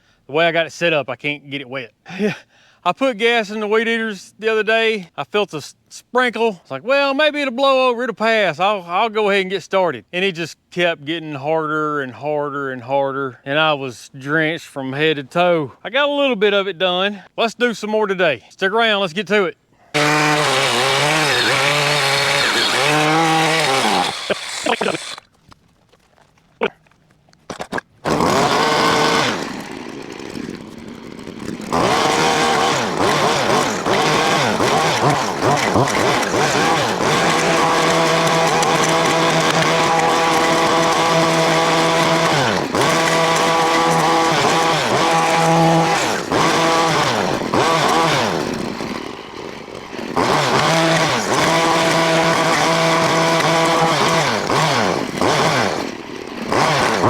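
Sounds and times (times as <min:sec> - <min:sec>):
weed eater cutting brush: 0:19.8 - 0:57.0.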